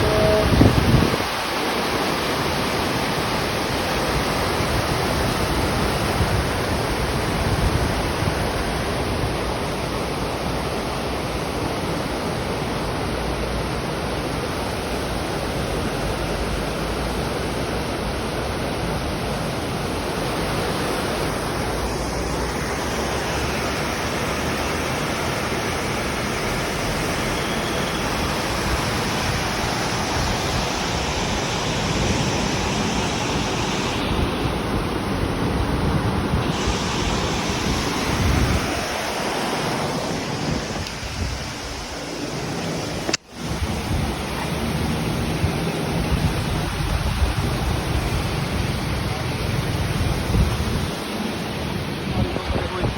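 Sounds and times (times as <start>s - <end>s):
rushing water: 0.0s - 52.9s.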